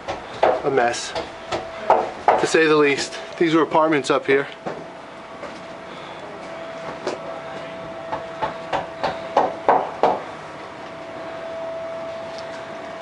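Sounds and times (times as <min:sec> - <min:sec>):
sharp knocks: 0:00.0 - 0:02.5, 0:08.1 - 0:10.2
faint steady hum: 0:00.0 - 0:13.0.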